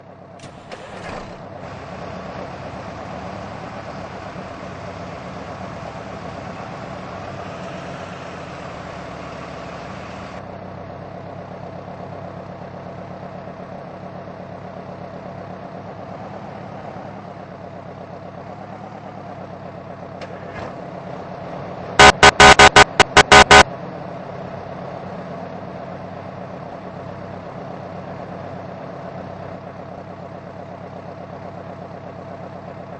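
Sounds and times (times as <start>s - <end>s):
diesel engine running: 0.0s - 32.9s
air horn blasts: 22.0s - 23.6s.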